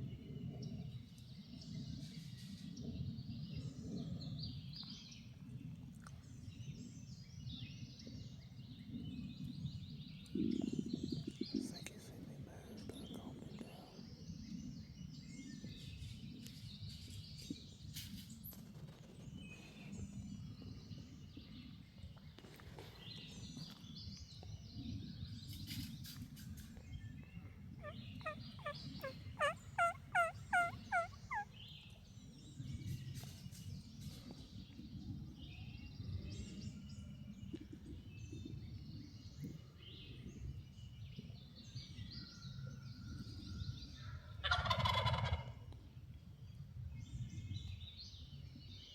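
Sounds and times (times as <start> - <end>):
songbirds chirping: 0.0 - 48.9
turkey calling: 27.8 - 31.6, 44.4 - 45.5.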